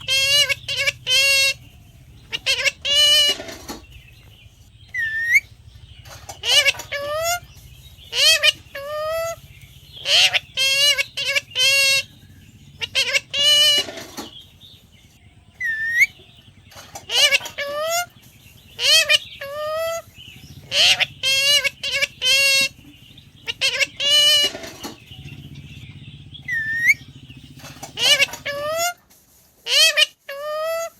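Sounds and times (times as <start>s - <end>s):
parrot talking: 0.0s - 1.6s, 2.2s - 3.6s, 6.4s - 7.5s, 8.1s - 9.4s, 10.0s - 12.1s, 12.8s - 14.0s, 17.1s - 18.1s, 18.8s - 22.7s, 23.4s - 24.7s, 27.9s - 29.0s, 29.7s - 30.9s
parrot rising whistle: 15.6s - 16.2s, 26.4s - 27.1s.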